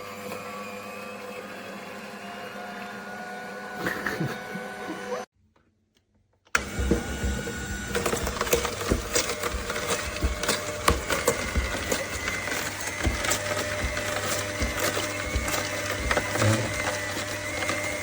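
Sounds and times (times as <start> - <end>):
juicer crushing produce: 0.0 - 5.3, 6.5 - 18.0
motor hum: 6.6 - 18.0.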